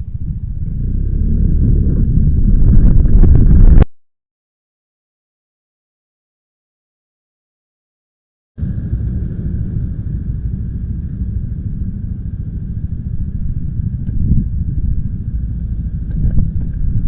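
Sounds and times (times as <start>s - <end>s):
motorcycle running: 0.0s - 3.8s, 8.6s - 17.0s.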